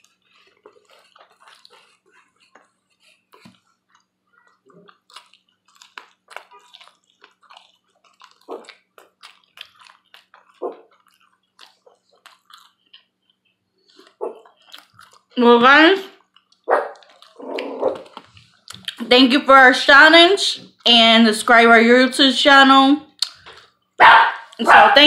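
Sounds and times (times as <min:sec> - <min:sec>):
person chewing wetly: 0:00.0 - 0:15.4, 0:16.0 - 0:19.0, 0:23.1 - 0:24.6.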